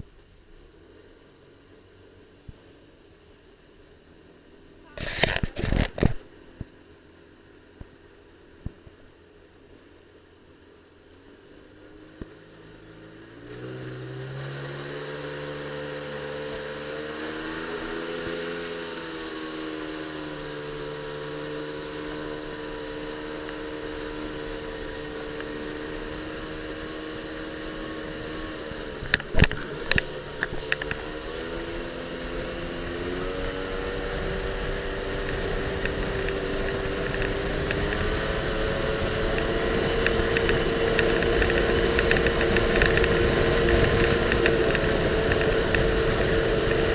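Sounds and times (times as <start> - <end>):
jet ski engine revving: 11.2 - 46.9
wind noise: 24.1 - 46.9.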